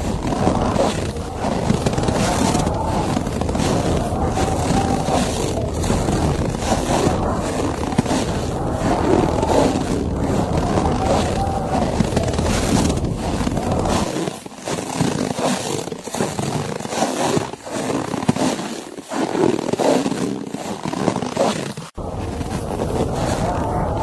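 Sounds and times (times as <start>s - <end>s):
low wind rumble: 0.0s - 14.1s, 22.0s - 24.0s
footsteps crunching through snow: 0.0s - 24.0s.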